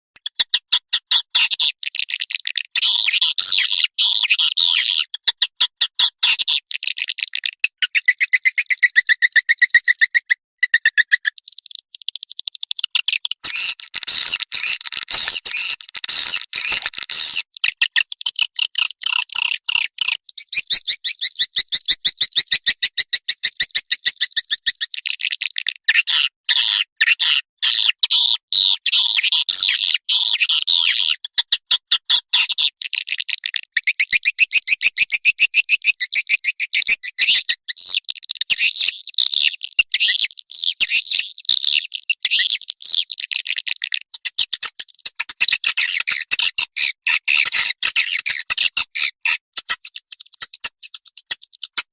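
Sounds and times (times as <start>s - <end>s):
swiftlets chattering twitter: 6.8s - 21.6s.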